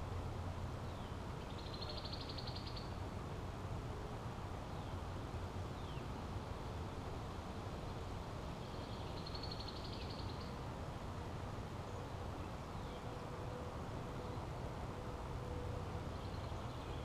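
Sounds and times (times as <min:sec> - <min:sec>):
low outdoor rumble: 0:00.0 - 0:09.2.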